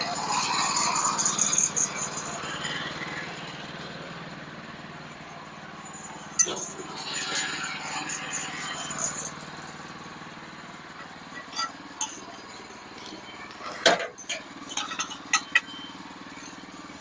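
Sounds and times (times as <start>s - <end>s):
sawmill engine running: 0.0s - 17.0s
sharp knocks and clinks: 13.0s - 16.6s.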